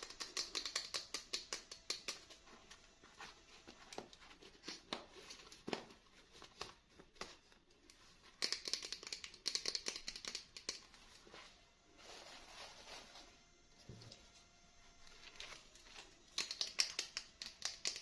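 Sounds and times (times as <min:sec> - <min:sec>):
packaging clicks and rustles: 0:15.1 - 0:18.0.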